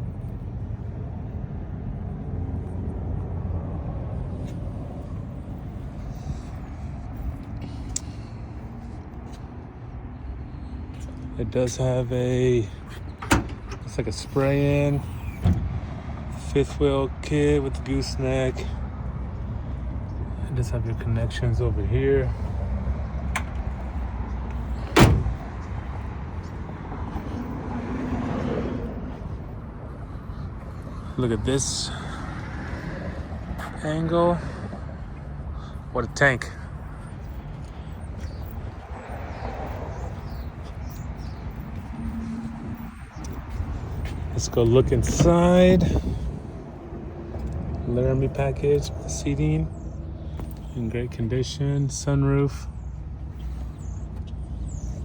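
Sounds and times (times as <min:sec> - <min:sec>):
low outdoor rumble: 0:00.0 - 0:55.0
truck door slamming: 0:12.9 - 0:14.0, 0:15.4 - 0:15.8, 0:23.3 - 0:23.8, 0:24.5 - 0:25.7, 0:44.9 - 0:46.2
steady low rumble: 0:34.4 - 0:55.0.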